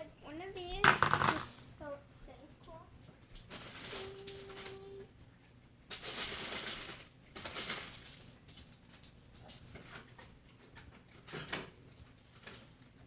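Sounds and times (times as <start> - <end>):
rustling and clatter of items: 2.6 - 5.1, 5.9 - 13.0.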